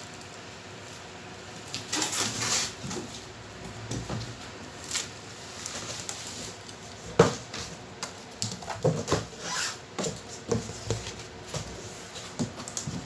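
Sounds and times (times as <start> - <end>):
knocks taps and rustles: 1.7 - 4.4, 5.7 - 13.0.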